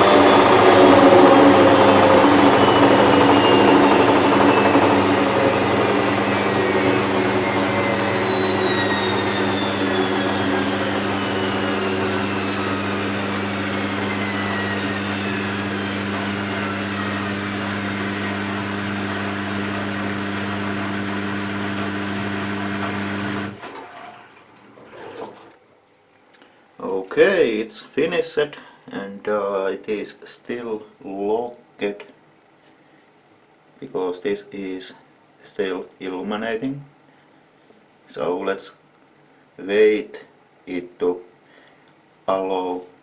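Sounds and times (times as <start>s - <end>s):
high falling whine: 0.0s - 22.2s
washer-dryer humming: 0.0s - 25.6s.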